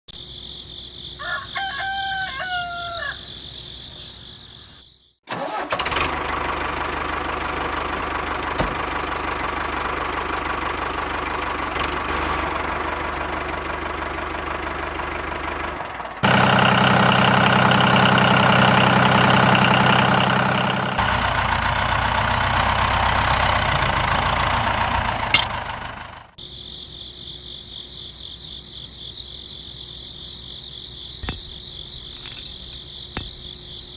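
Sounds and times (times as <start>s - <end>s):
crickets chirring: 0.1s - 5.2s, 26.4s - 33.9s
rooster crowing: 1.2s - 3.4s.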